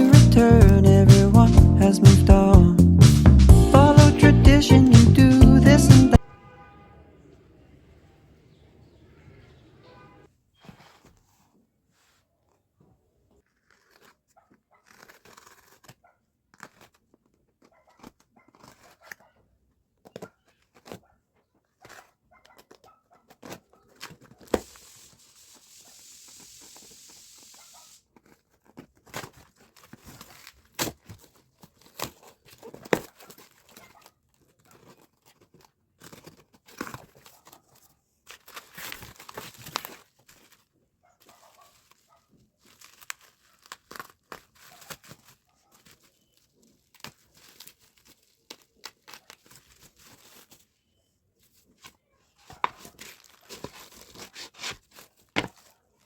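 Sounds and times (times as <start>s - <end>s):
thin material crinkling and tearing: 10.6s - 56.0s
steady hiss: 24.6s - 28.0s.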